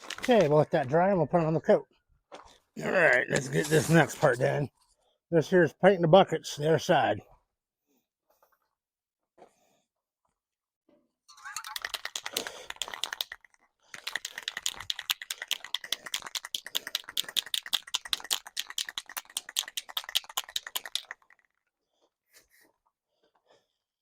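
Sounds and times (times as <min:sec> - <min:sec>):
spray can rattling: 0:11.3 - 0:21.5.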